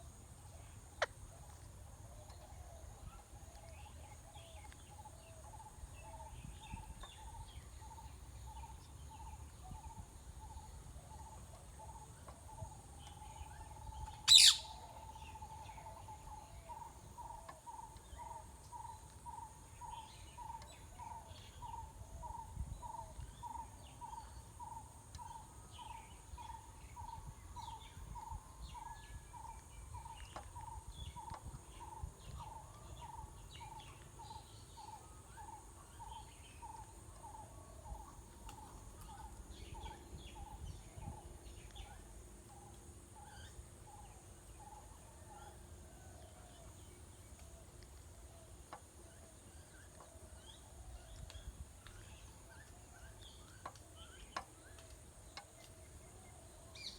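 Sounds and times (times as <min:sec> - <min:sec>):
birds chirping: 0:13.0 - 0:21.8.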